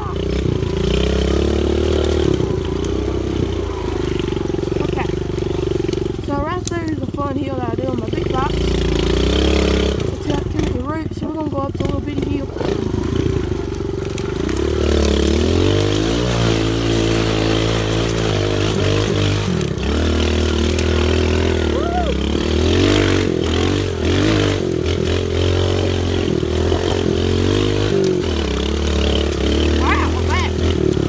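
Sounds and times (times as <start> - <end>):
pit bike engine revving: 0.0 - 31.0.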